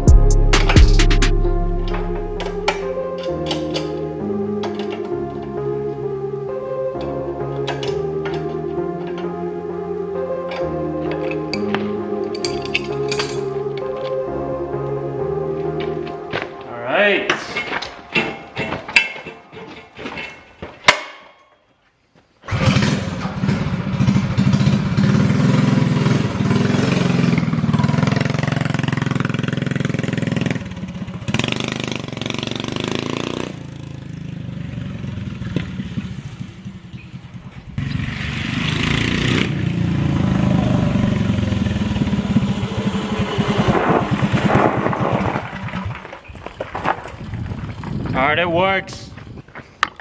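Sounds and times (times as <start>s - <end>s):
small engine revving: 22.5s - 37.1s, 37.8s - 45.2s.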